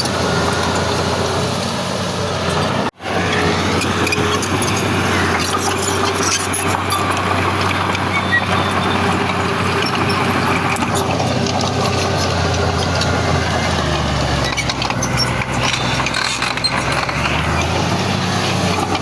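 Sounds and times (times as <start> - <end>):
diesel machinery engine hum: 0.0 - 19.0.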